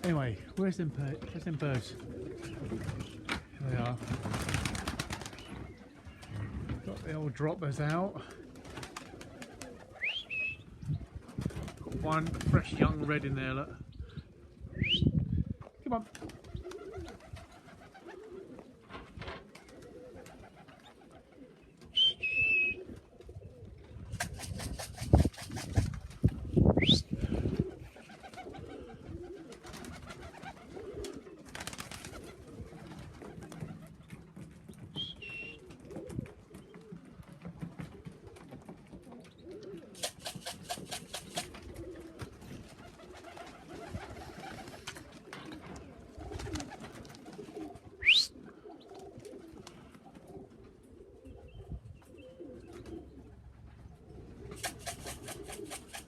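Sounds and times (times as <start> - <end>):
pigeons cooing: 0.0 - 56.0
brief rattling bursts: 24.1 - 26.0.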